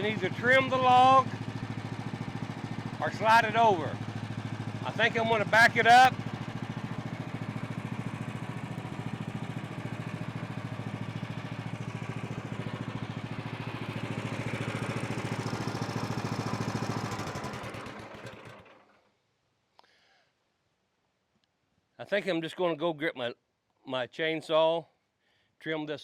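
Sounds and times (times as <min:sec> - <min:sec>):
small gasoline engine running: 0:00.0 - 0:19.0
engine coasting to a stop: 0:00.0 - 0:19.1.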